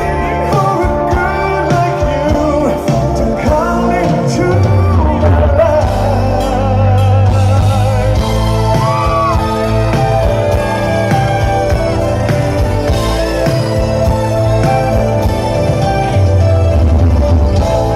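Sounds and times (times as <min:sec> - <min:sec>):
lead vocal singing: 0:00.0 - 0:14.0
rock band playing: 0:00.0 - 0:17.9.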